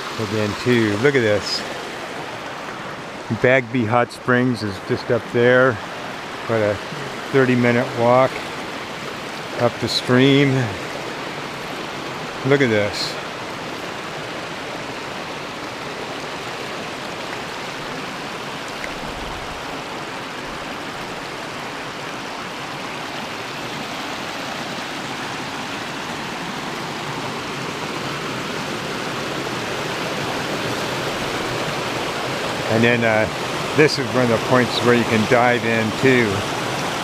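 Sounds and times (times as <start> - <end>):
river rushing over rocks: 0.0 - 37.0.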